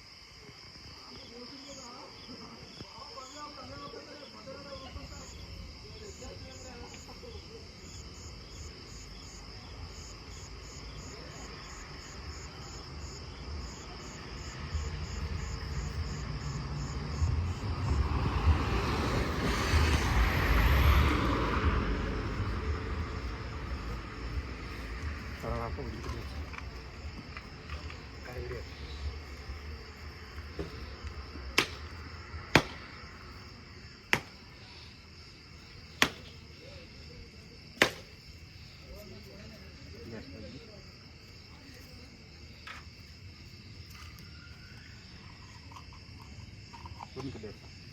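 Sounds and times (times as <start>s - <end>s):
crickets chirping: 0.0s - 47.9s
sharp cracks: 30.5s - 33.3s, 34.1s - 34.6s, 35.9s - 36.5s, 37.8s - 38.2s.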